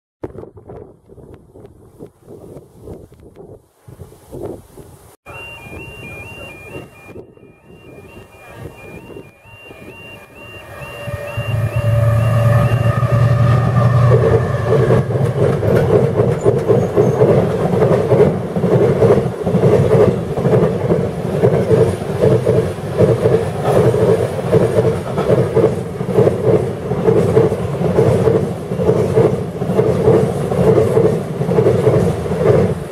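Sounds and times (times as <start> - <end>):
diesel locomotive engine: 5.3 - 32.9
freight wagon wheels clattering on rails: 14.1 - 32.7.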